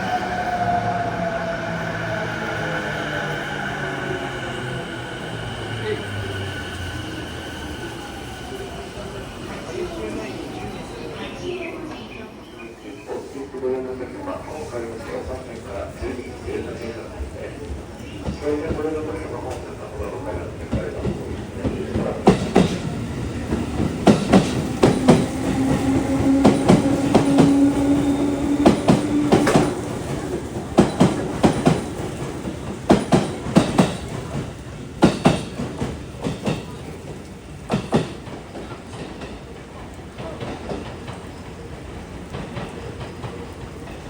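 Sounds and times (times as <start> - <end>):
train running hum: 0.0 - 12.4, 13.1 - 44.0
train wheels clicking over rail joints: 17.2 - 44.0.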